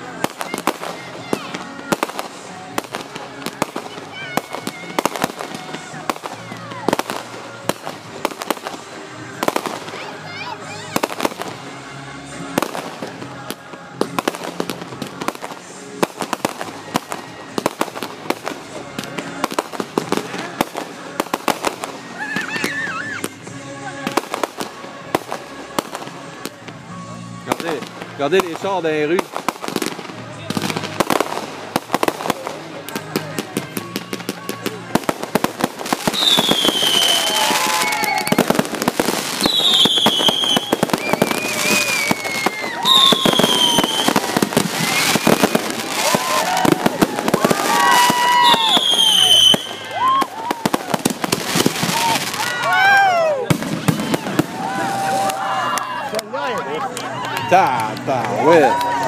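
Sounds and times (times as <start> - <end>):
fireworks bangs and crackles: 0.0 - 59.0
music playing: 0.0 - 59.0
whistling firework: 20.7 - 23.3, 33.6 - 55.7.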